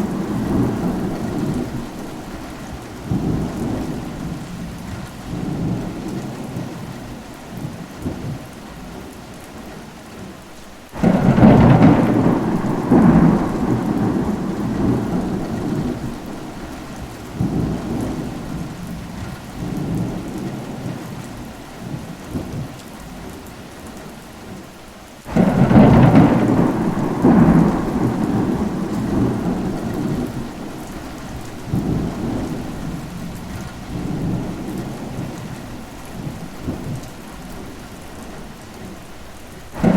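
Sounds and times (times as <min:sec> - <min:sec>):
thunder claps rumbling: 0:00.0 - 0:09.1, 0:11.0 - 0:23.4, 0:25.3 - 0:39.0, 0:39.6 - 0:39.9
steady rain: 0:00.0 - 0:39.9.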